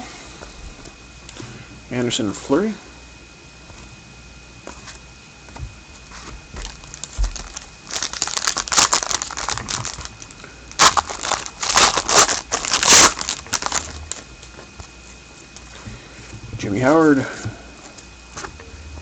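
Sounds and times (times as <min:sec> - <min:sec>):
wrapper crinkling: 0:06.6 - 0:14.3.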